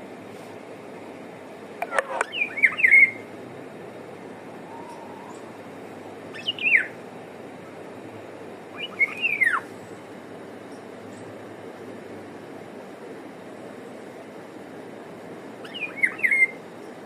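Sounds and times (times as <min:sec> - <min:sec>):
background hiss: 0:00.0 - 0:17.0
bird calling: 0:01.8 - 0:03.3, 0:04.6 - 0:05.6, 0:06.3 - 0:07.0, 0:08.7 - 0:09.7, 0:15.6 - 0:16.6.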